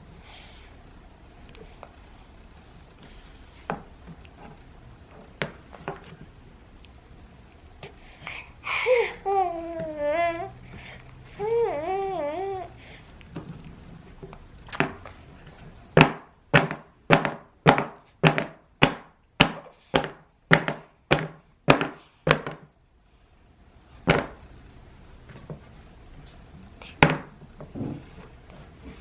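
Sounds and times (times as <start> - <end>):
sharp knocks on hard surface: 16.0 - 22.6.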